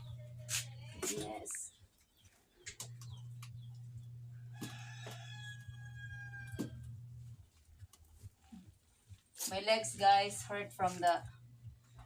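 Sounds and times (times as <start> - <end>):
low hum: 2.8 - 4.9
rooster crowing: 4.5 - 7.0.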